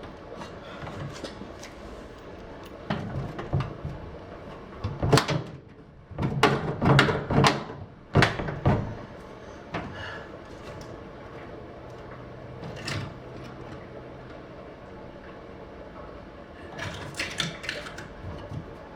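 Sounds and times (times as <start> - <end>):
microwave oven clunks and knocks: 2.8 - 10.0.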